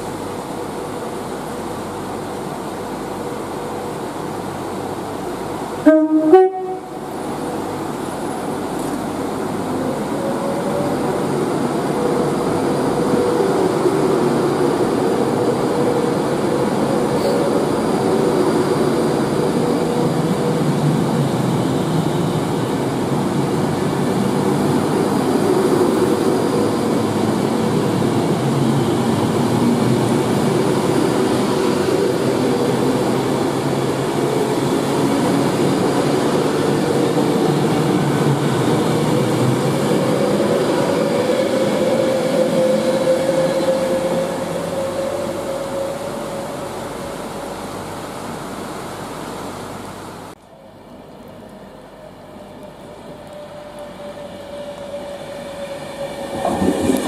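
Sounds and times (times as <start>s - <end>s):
train rumble: 0.0s - 57.0s
train horn blast: 5.8s - 7.2s, 41.5s - 46.6s.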